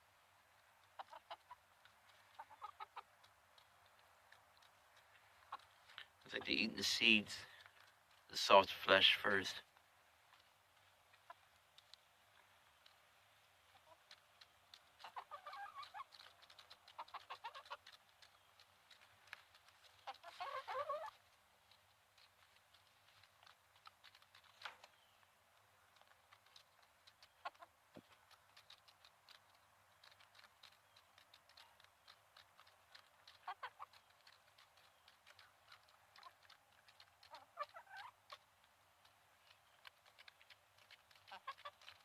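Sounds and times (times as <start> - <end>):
hens pecking: 0.0 - 42.0
soft hen clucks: 0.8 - 6.6, 13.6 - 19.0, 19.6 - 22.3, 26.0 - 38.5, 39.4 - 42.0.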